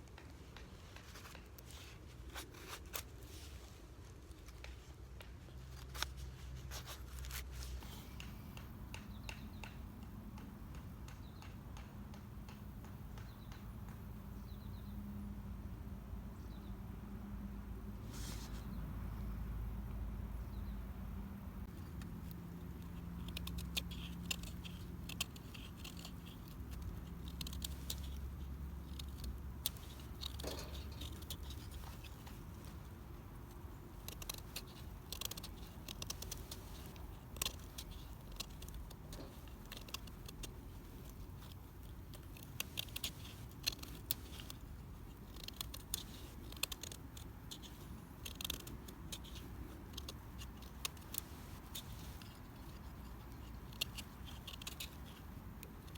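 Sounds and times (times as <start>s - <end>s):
low background hum: 0.0s - 55.9s
small sharp clicks and crackles: 7.0s - 14.0s, 21.6s - 55.9s.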